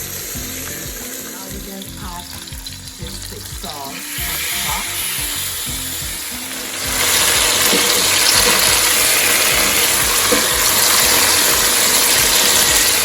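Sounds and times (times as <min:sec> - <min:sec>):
sauce sizzling in hot pan: 0:00.0 - 0:13.0.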